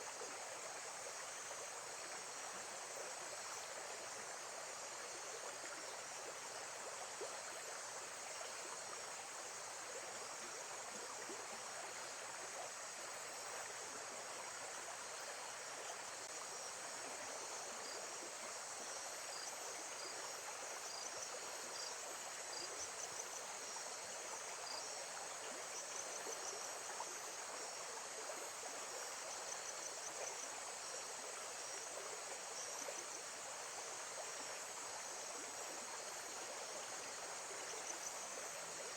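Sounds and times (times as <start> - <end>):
insects chirping faintly: 0.0 - 38.9.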